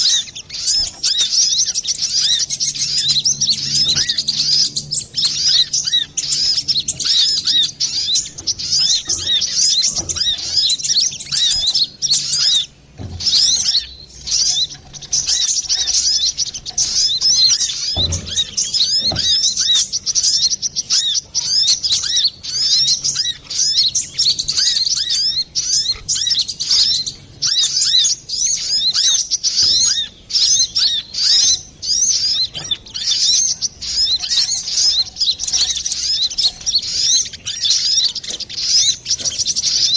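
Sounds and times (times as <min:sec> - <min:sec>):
sunbird chirping and twittering: 0:00.0 - 0:39.9.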